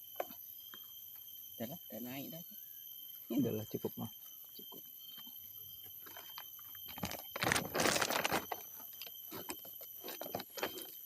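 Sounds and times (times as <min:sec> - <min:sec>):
high insect drone: 0:00.0 - 0:11.0
dense crackling and crunching: 0:06.9 - 0:08.8.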